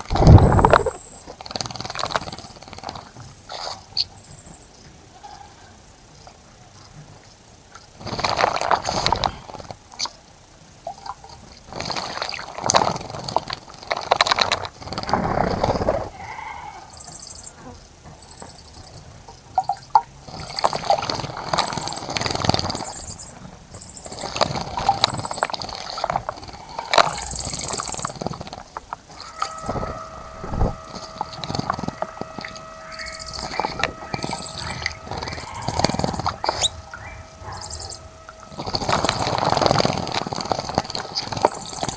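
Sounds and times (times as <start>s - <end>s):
birds splashing in water: 0.0s - 2.0s, 24.0s - 41.9s
two-note hum: 28.8s - 41.9s
bird chirps: 29.1s - 41.9s.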